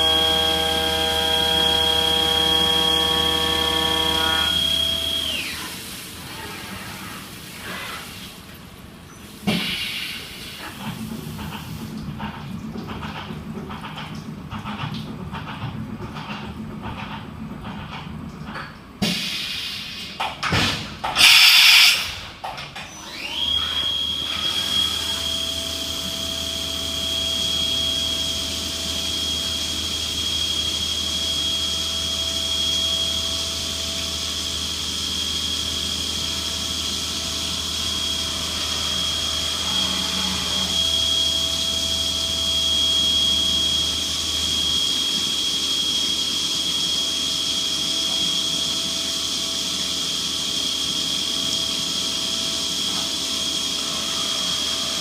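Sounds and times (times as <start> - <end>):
milling machine spindle whine: 0.0 - 8.0, 22.8 - 55.0.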